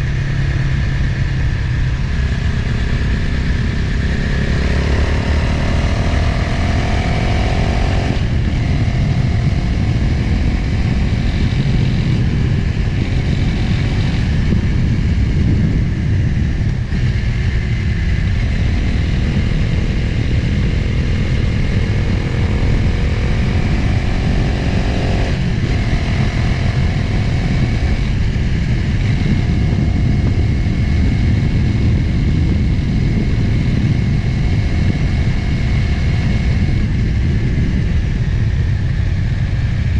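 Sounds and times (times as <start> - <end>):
motorcycle engine accelerating: 0.0 - 39.9
wind rushing over microphone: 0.0 - 39.9.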